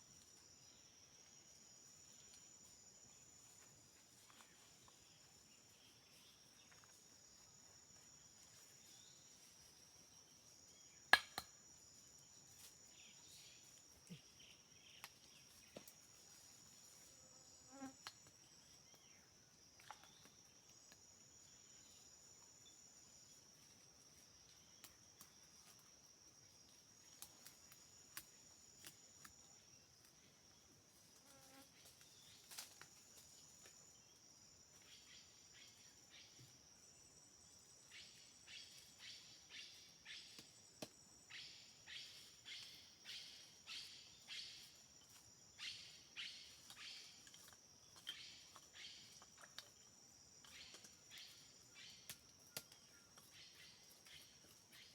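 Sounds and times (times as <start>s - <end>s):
insects buzzing trill: 0.0s - 19.4s, 20.0s - 54.9s
insect call rhythmic pulses: 0.0s - 54.9s.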